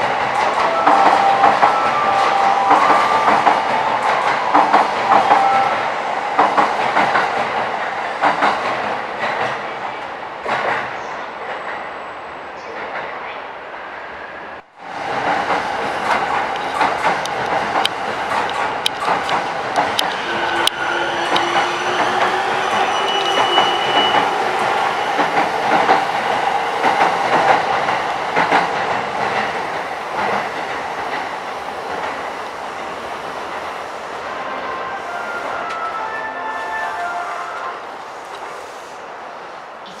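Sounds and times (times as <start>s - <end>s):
train wheels clacking over rail joints: 0.2s - 5.6s, 6.4s - 9.6s, 15.1s - 32.4s.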